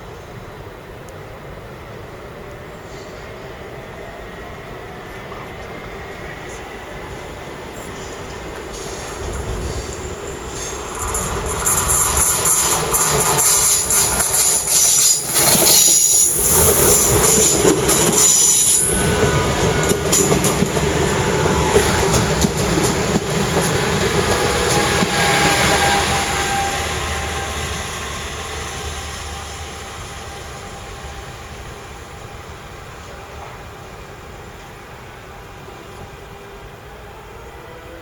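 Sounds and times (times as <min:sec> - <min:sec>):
train clattering over rails: 0:00.0 - 0:37.0
train wheels squealing: 0:02.7 - 0:03.6, 0:07.7 - 0:32.6.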